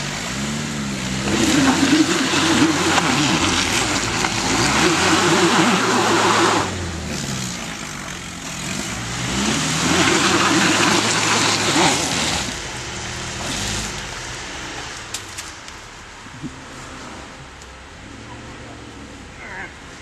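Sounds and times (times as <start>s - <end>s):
off-road vehicle engine revving: 0.0s - 20.0s.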